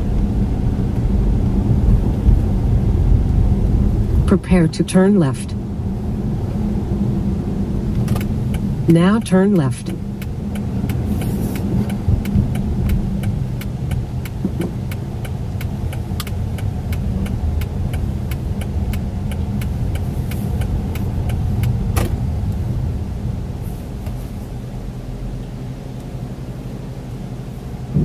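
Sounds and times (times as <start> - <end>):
car engine and road rumble: 0.0 - 28.0
turn signal clicking: 7.9 - 22.7.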